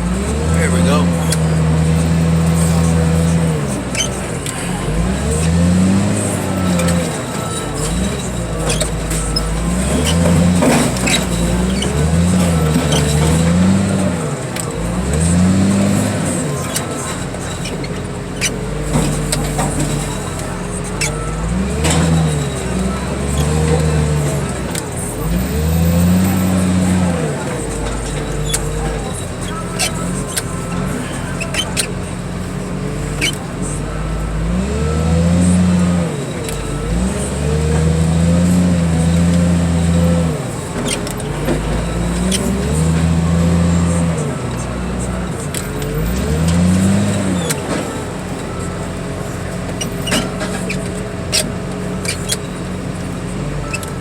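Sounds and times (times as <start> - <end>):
car crusher engine: 0.0 - 54.0.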